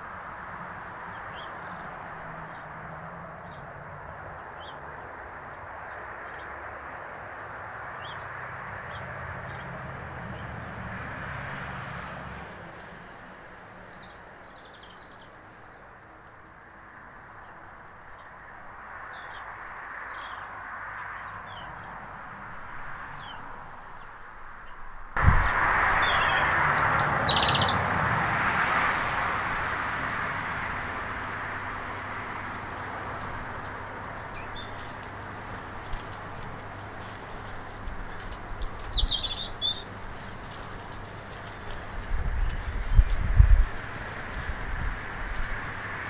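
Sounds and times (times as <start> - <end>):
small birds chirping: 25.2 - 46.0
steady outdoor rush: 25.2 - 46.0.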